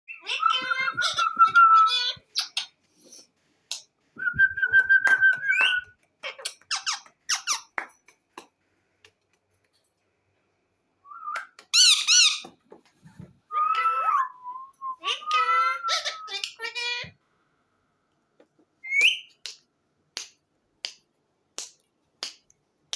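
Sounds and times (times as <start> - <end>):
parrot squawk: 0.1 - 2.7, 15.0 - 17.1
parrot squeaks: 0.1 - 2.7, 5.5 - 7.7, 11.7 - 12.5, 15.0 - 17.1
parrot whistling: 13.5 - 16.6.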